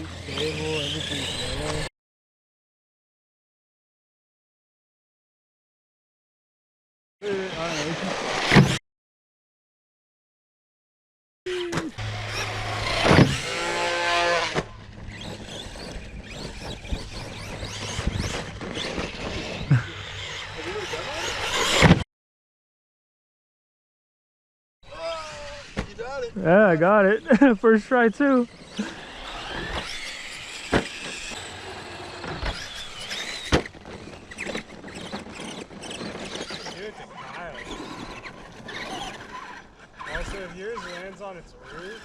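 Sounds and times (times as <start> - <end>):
rc car electric motor whining: 0.0 - 1.9, 7.2 - 8.8, 11.5 - 22.0, 24.9 - 27.4, 28.1 - 42.0.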